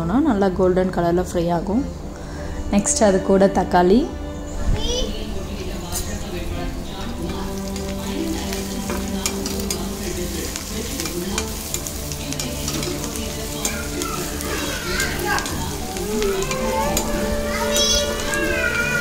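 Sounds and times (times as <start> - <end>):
onions sizzling in oil: 5.5 - 19.0
spatula scraping pan: 7.0 - 19.0.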